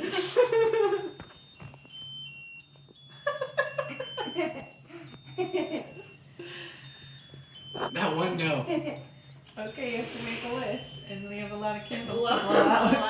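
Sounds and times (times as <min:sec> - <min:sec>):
electronic chip beeping tune: 0:01.2 - 0:13.0
people talking: 0:07.8 - 0:09.0, 0:09.6 - 0:13.0
people laughing: 0:12.2 - 0:13.0.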